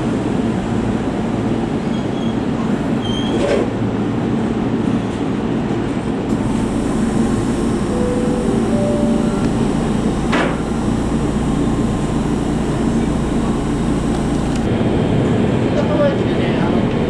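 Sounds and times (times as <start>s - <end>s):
click: 6.3s - 14.7s.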